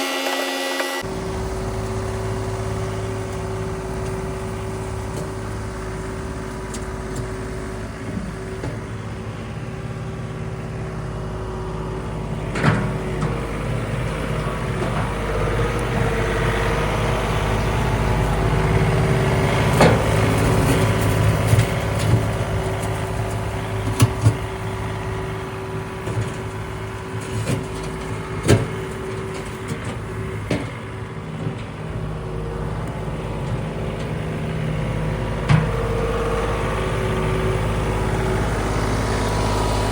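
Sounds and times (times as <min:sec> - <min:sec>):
tractor diesel engine running: 0:00.0 - 0:39.9
stump grinder knocks and cracks: 0:12.4 - 0:34.2.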